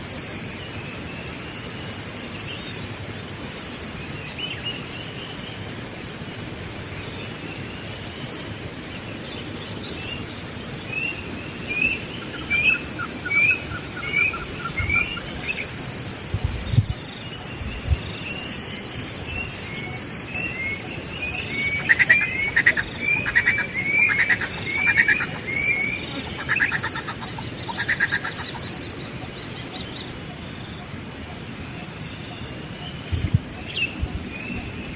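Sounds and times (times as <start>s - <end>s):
high background hum: 0.0s - 34.9s
birds calling: 9.4s - 34.9s.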